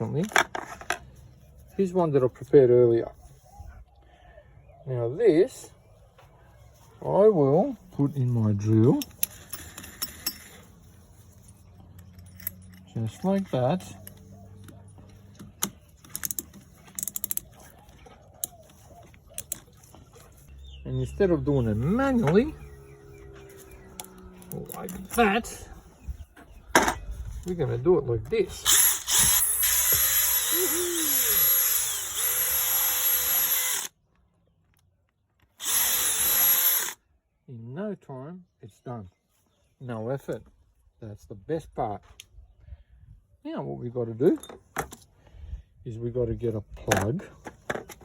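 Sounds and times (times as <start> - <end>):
clicks and rattles from handling a drill: 15.1 - 17.5
electric drill motor: 28.7 - 34.0, 35.6 - 37.0.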